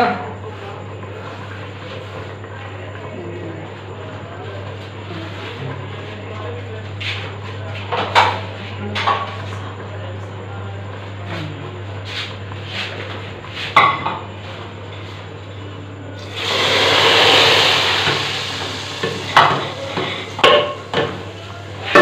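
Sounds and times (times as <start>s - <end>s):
food sizzling in hot oil: 16.2s - 19.7s.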